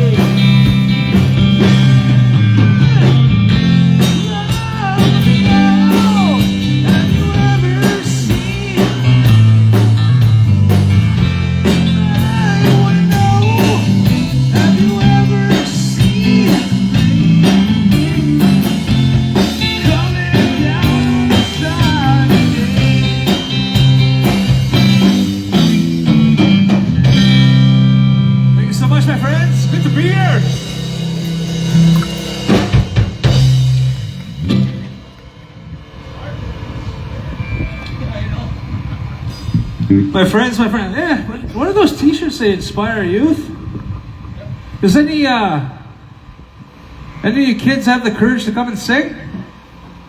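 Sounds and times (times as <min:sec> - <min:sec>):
drum kit: 0:00.0 - 0:37.7
electric guitar lead: 0:00.0 - 0:44.9
bass guitar line: 0:00.0 - 0:50.0.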